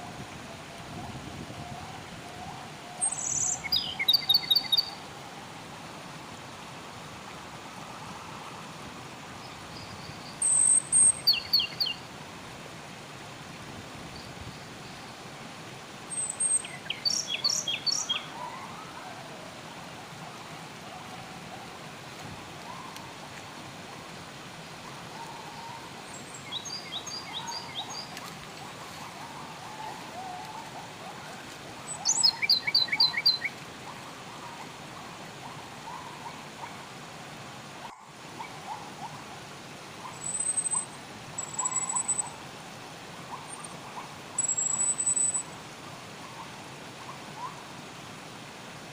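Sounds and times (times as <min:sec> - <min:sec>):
flowing water rushing: 0:00.0 - 0:48.9
songbirds singing: 0:02.0 - 0:05.1, 0:09.3 - 0:12.1, 0:16.1 - 0:19.2, 0:22.6 - 0:36.8, 0:40.0 - 0:42.4, 0:43.2 - 0:45.6.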